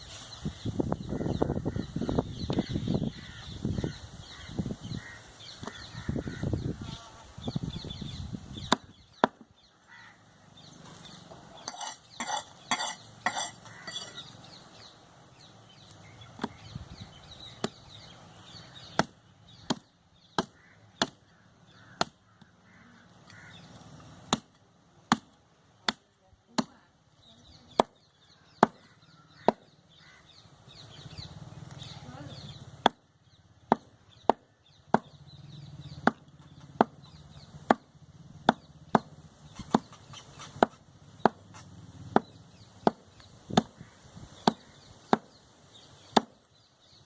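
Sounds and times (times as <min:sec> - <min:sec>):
cleaver chopping meat and bone: 0:08.6 - 0:09.5, 0:16.4 - 0:16.6, 0:18.9 - 0:22.5, 0:24.3 - 0:26.8, 0:27.7 - 0:29.8, 0:32.8 - 0:35.2, 0:36.0 - 0:43.8, 0:44.4 - 0:45.4, 0:46.1 - 0:46.4.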